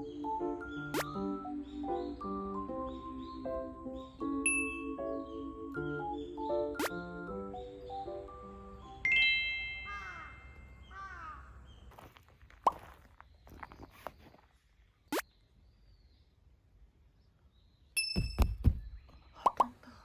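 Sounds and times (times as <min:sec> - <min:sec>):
faint outdoor background: 0:00.0 - 0:20.0
chime ringing: 0:04.4 - 0:04.9, 0:09.0 - 0:10.7
low thumps: 0:18.2 - 0:19.1.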